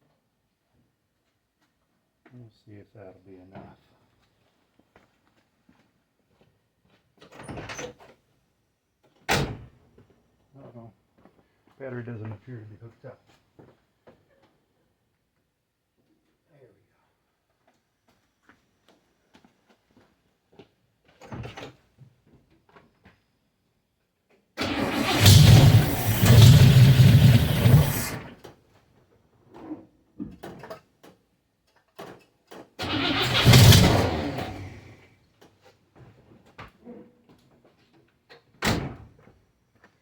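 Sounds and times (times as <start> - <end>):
car engine starting and running: 24.6 - 28.3, 32.8 - 35.0.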